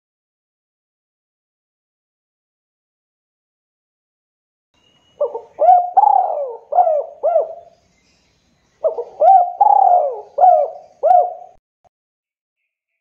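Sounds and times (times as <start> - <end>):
dove cooing: 5.2 - 7.7, 8.8 - 11.6.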